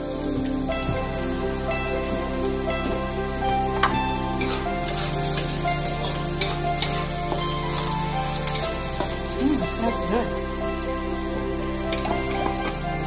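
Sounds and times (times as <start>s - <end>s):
onions and garlic sizzling in oil: 0.0s - 13.0s
utensil scraping a wok: 4.4s - 9.6s.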